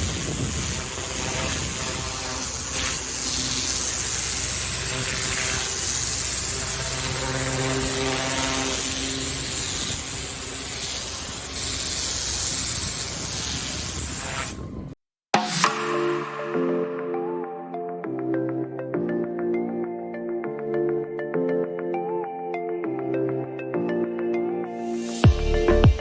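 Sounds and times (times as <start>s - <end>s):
engine drone: 0.0s - 14.0s
water jet hissing on paving: 0.0s - 14.6s.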